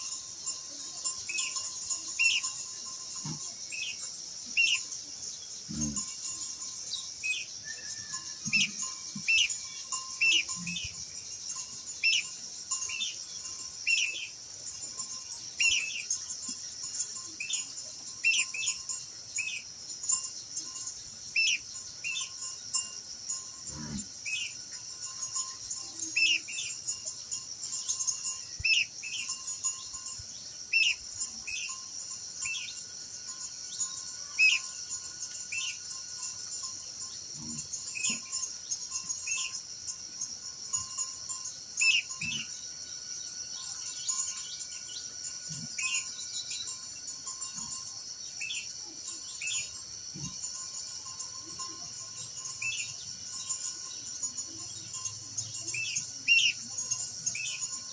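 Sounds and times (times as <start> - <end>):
bird chirping: 0.0 - 22.9, 24.2 - 39.6, 40.2 - 57.9
insect buzz: 0.0 - 57.9.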